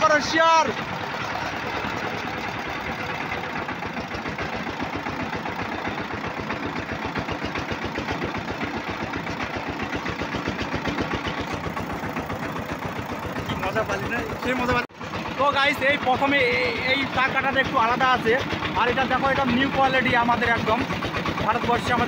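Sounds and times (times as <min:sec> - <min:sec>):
diesel engine chugging: 0:00.0 - 0:22.0.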